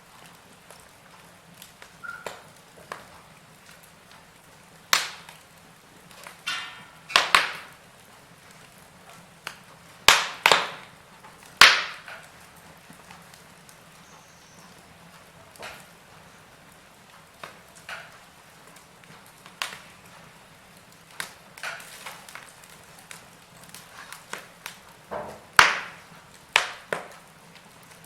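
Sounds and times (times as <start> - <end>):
burning wood crackling: 0.0 - 28.0
faint steady hiss: 0.0 - 28.0
sharp loud pops: 10.1 - 10.9, 11.6 - 12.2, 25.1 - 26.0.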